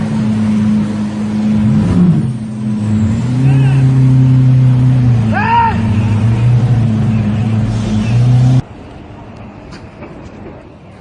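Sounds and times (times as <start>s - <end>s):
car engine at high revs: 0.0s - 8.7s
person shouting: 3.4s - 4.0s, 5.2s - 6.2s.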